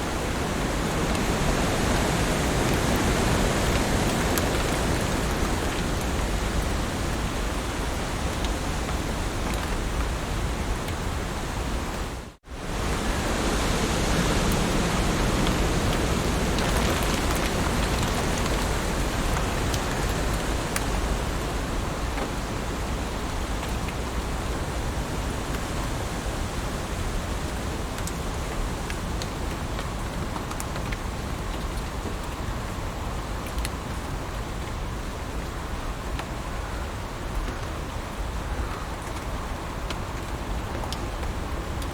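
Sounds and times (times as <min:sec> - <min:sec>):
heavy rain hissing: 0:00.0 - 0:27.9
rain drop ticks: 0:02.3 - 0:06.8, 0:08.2 - 0:10.1, 0:14.5 - 0:21.4, 0:27.5 - 0:32.5, 0:33.4 - 0:34.8.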